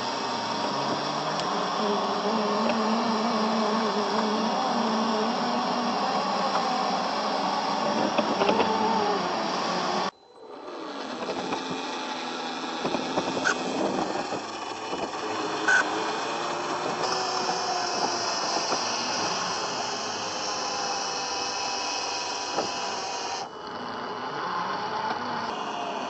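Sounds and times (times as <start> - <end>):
small electric motor whining: 0.0 - 26.0.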